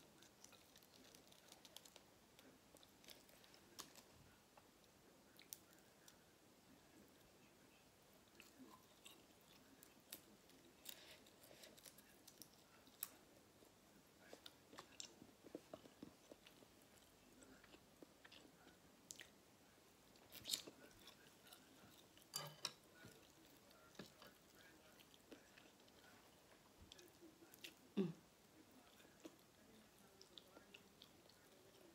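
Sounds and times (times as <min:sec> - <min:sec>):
chewing noodle soup: 0:20.1 - 0:27.9.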